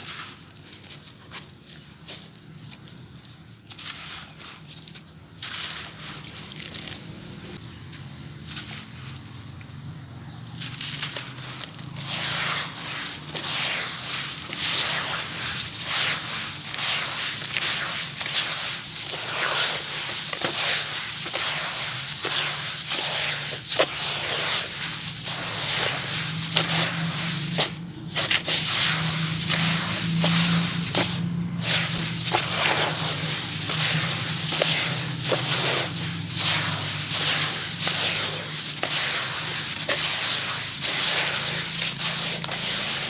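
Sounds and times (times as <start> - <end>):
gritty crunchy crackling: 4.5 - 43.0.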